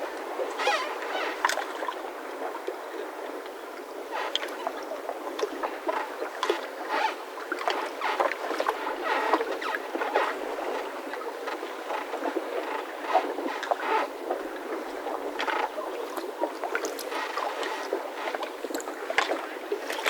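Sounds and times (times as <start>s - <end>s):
mooring ropes squeaking and creaking: 0.4s - 1.6s, 5.9s - 10.9s, 11.5s - 14.1s, 16.8s - 18.4s, 19.8s - 20.0s.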